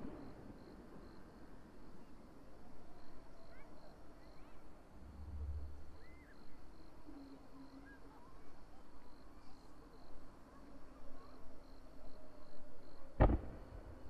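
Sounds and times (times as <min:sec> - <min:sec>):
insect chirping: 0:00.1 - 0:10.3
distant crowd voices: 0:01.6 - 0:14.0
brief low rumble: 0:05.0 - 0:06.4.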